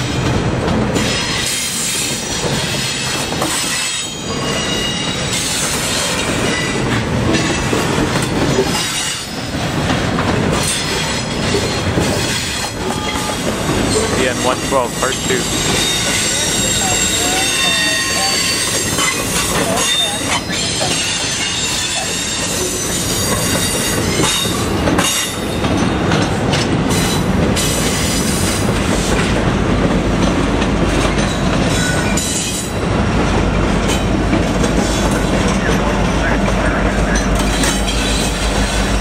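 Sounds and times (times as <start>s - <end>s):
diesel locomotive rumble: 0.0s - 39.0s
freight train wheels clattering: 0.0s - 39.0s
high wheel squeal: 1.0s - 6.8s, 15.3s - 24.5s.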